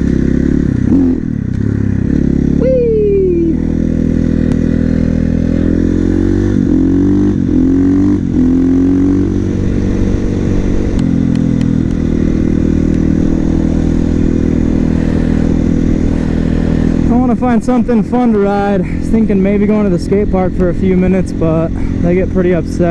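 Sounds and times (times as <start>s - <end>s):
motorcycle engine upshifting: 0.0s - 22.9s.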